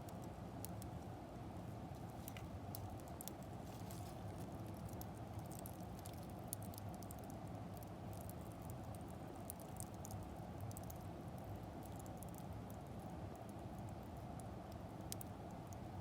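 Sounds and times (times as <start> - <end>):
wood fire crackling: 1.9 - 15.8.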